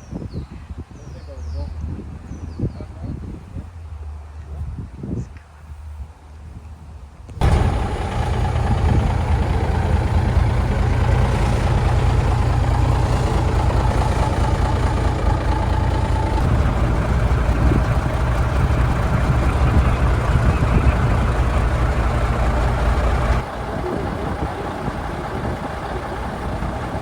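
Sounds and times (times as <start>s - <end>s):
heavy truck engine running: 7.4s - 27.0s.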